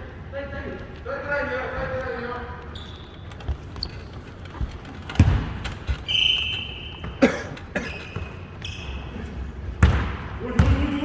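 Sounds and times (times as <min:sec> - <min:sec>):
shoe squeaks: 0:01.7 - 0:09.4
basketball thudding on court: 0:05.1 - 0:05.7, 0:09.8 - 0:10.9.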